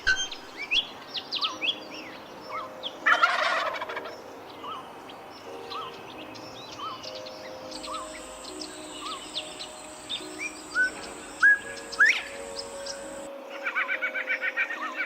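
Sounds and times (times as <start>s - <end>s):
birds chirping and whistling: 0.0s - 15.0s
thin steady high tone: 0.0s - 15.0s
sharp bird chirps: 6.8s - 13.3s.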